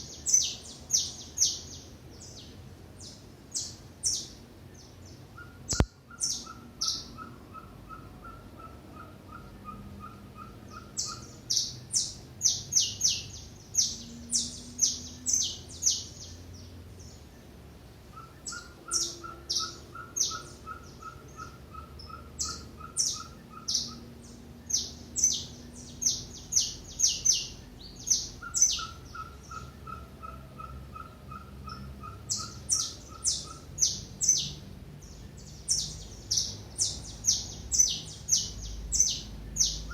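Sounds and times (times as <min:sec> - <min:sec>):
lower evenly paced bird notes: 0:00.0 - 0:39.9
small birds chirping: 0:00.0 - 0:39.9
sharp click: 0:05.7 - 0:05.9.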